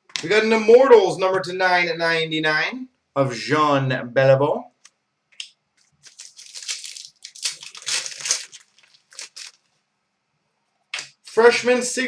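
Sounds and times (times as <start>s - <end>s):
plastic wrappers crinkling: 5.8s - 9.7s.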